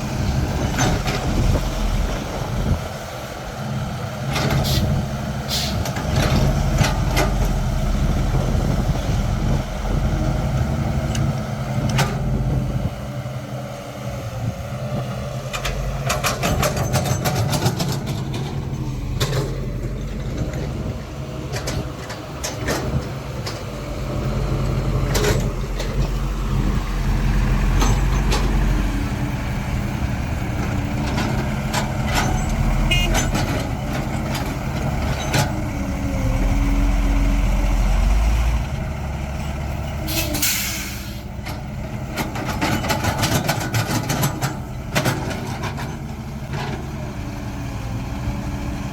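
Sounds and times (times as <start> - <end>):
excavator diesel engine: 0.0 - 48.9
knocks and clatter: 15.5 - 20.8, 30.6 - 35.6, 41.4 - 46.8.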